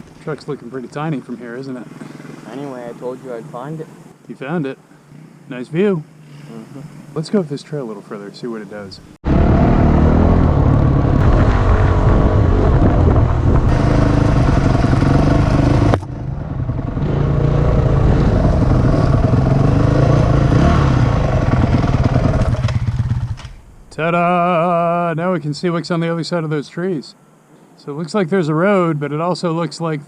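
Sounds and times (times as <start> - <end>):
dirt bike engine running: 9.2 - 23.6.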